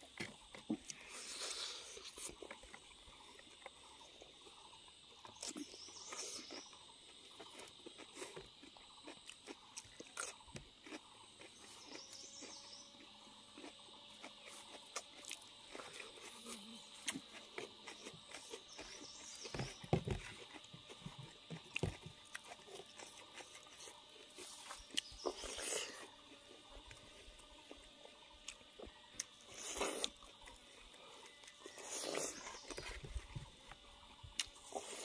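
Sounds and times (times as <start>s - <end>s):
chewing: 5.2s - 35.0s.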